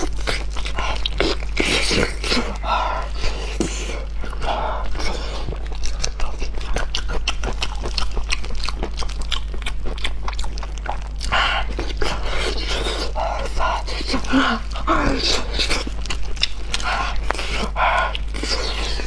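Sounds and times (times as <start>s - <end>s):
chewing and mouth smacks: 0.0s - 19.0s.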